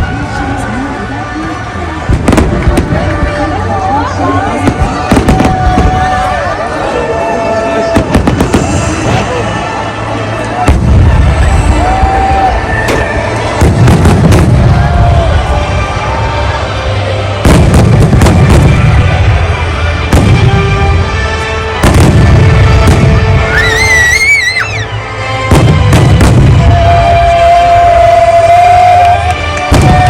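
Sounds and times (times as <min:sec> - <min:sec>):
background music: 0:00.0 - 0:30.0
fireworks booming: 0:02.1 - 0:03.6, 0:04.5 - 0:06.3, 0:07.8 - 0:09.5, 0:10.6 - 0:15.6, 0:17.4 - 0:24.0, 0:25.4 - 0:27.3, 0:29.7 - 0:30.0
wavering whistle: 0:23.5 - 0:24.9.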